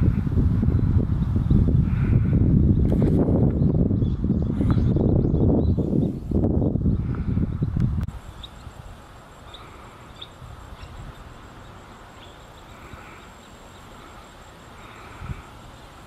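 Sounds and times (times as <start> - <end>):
wind rumble on microphone: 0.0 - 16.0
high bird peeps: 9.4 - 14.0.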